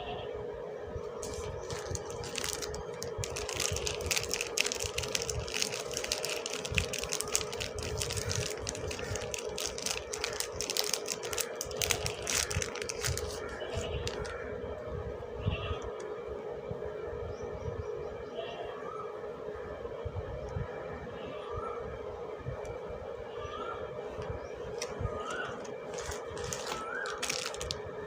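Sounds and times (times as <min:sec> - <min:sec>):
packaging crinkling: 0:01.2 - 0:14.4, 0:24.6 - 0:27.8.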